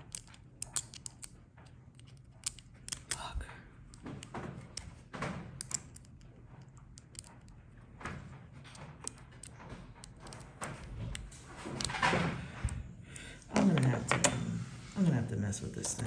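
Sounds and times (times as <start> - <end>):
plastic toy parts clicking: 0.0 - 4.0, 5.6 - 7.6.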